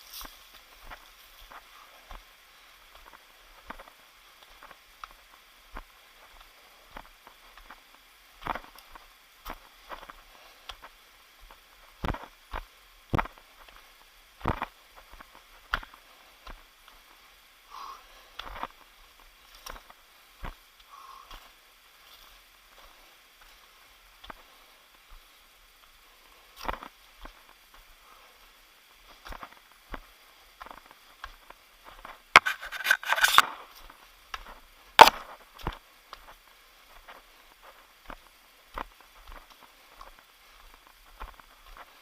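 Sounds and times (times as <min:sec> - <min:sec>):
footsteps on a trail: 0:00.0 - 0:42.0
scraping: 0:32.4 - 0:33.5.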